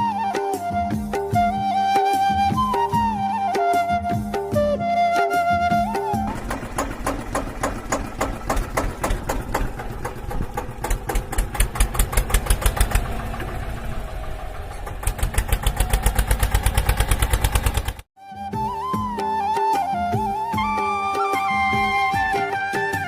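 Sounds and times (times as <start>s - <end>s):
engine chugging: 5.8s - 18.1s.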